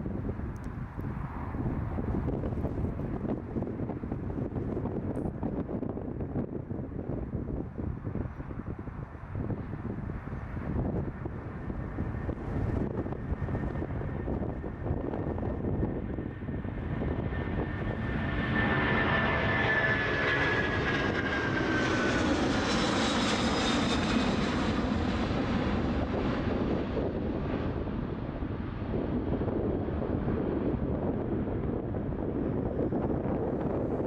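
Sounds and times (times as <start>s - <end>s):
jet engines at takeoff power: 0.0s - 34.0s.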